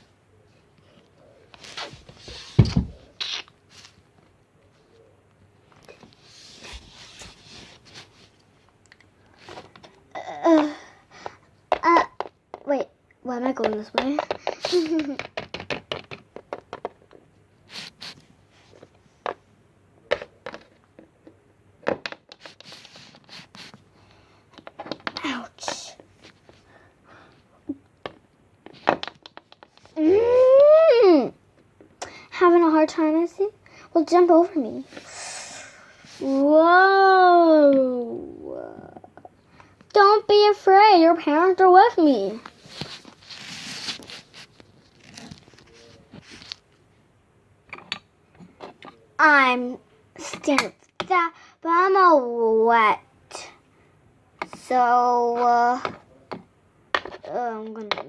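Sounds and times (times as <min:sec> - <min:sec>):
soft rustling: 0:05.8 - 0:09.9, 0:42.2 - 0:47.0
plastic toys tapping: 0:10.5 - 0:12.8, 0:13.6 - 0:17.2, 0:24.6 - 0:25.8, 0:28.0 - 0:29.9, 0:55.8 - 0:58.0
plastic toys scraping: 0:42.5 - 0:46.6.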